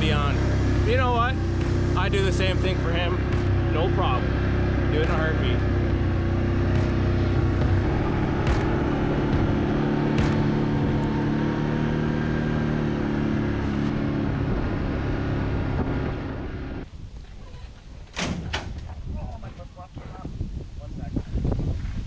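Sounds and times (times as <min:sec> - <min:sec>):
vehicle engine running: 0:00.0 - 0:16.9
sharp knocks: 0:06.7 - 0:11.1.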